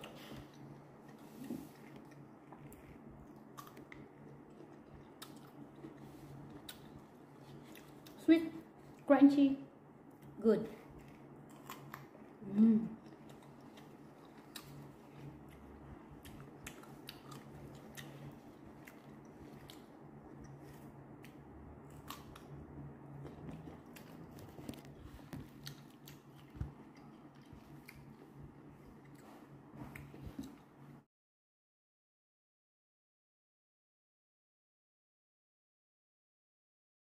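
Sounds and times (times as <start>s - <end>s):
chewing crunchy fruit: 0.0s - 9.1s, 10.0s - 31.0s
person humming: 12.4s - 13.0s.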